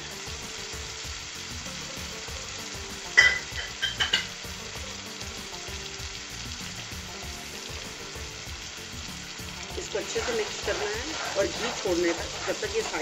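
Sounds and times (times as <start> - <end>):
masala sizzling in ghee: 0.0 - 13.0.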